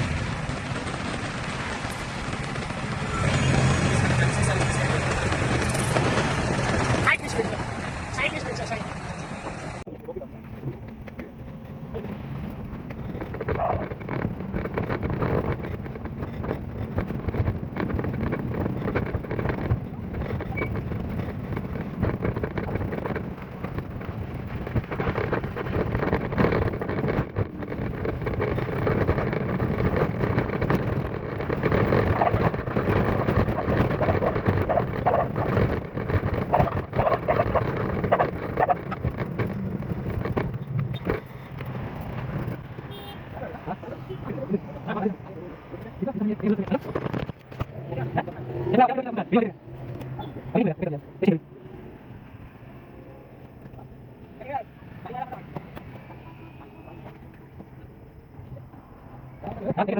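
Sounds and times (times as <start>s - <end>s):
vehicle road rumble: 0.0s - 59.9s
wind buffeting microphone: 9.7s - 59.9s.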